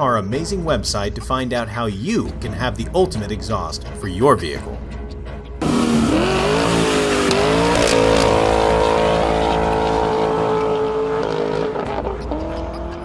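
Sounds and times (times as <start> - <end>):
car engine accelerating hard: 5.6 - 13.0.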